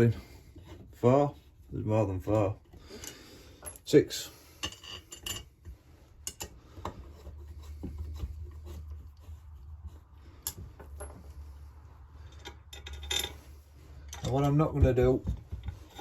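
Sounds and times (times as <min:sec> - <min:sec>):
metal bolts clicking and tapping: 0:04.6 - 0:07.0, 0:12.2 - 0:16.0.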